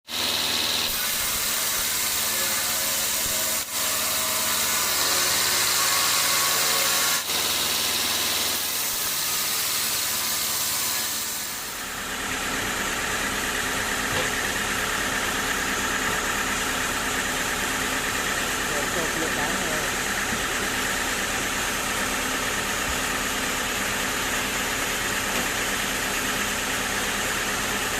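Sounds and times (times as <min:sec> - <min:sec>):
machine buzzing: 0:00.1 - 0:12.0
sawmill machinery running: 0:00.1 - 0:27.9.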